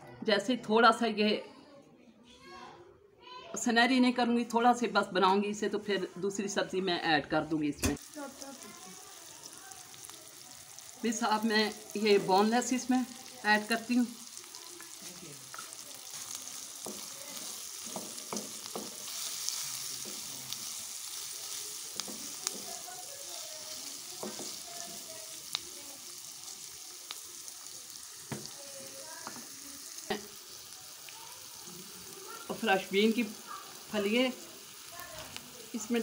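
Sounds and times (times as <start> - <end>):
food sizzling in hot oil: 7.5 - 36.0.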